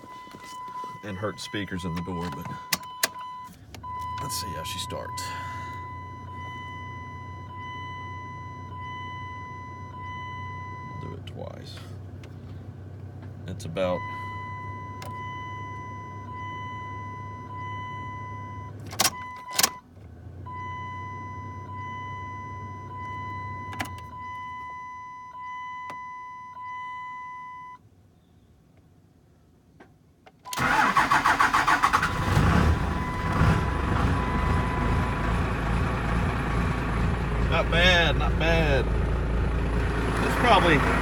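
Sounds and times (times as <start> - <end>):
diesel engine running: 0.0 - 19.0, 30.5 - 41.0.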